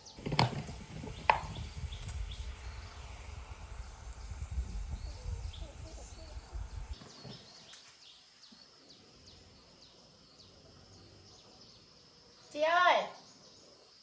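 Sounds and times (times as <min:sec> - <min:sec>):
small birds chirping: 0:00.0 - 0:14.0
low rumble: 0:00.7 - 0:07.0.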